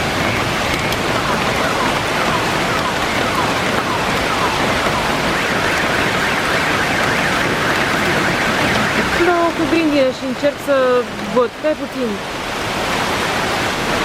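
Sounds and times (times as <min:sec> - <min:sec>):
heavy rain with hail: 0:00.0 - 0:14.0
car alarm: 0:00.2 - 0:10.1.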